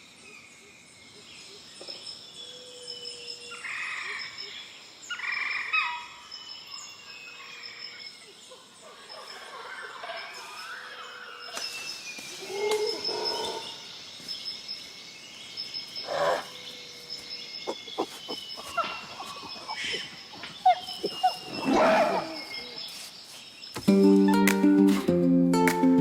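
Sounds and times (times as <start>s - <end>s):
harsh animal calls: 16.0s - 16.7s, 17.6s - 22.8s.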